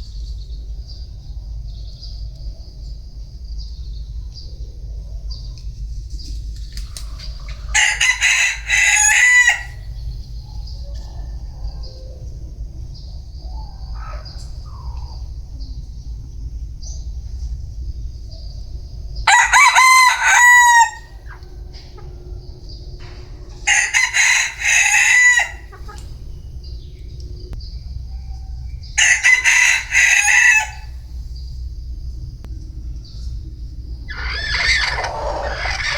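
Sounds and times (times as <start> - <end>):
roosters crowing: 7.0 - 12.4, 13.4 - 15.5, 19.2 - 32.2, 33.6 - 35.9.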